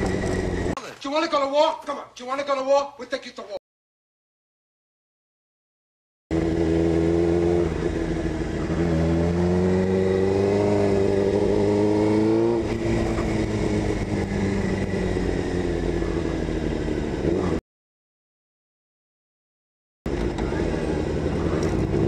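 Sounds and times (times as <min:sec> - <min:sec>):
motorcycle engine accelerating: 0:00.0 - 0:00.8, 0:06.3 - 0:17.6, 0:20.1 - 0:22.0.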